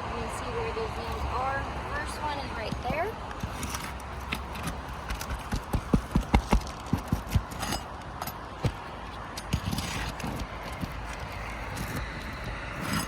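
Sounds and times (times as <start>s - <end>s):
roofing tool knocking and clacking: 2.7s - 12.0s.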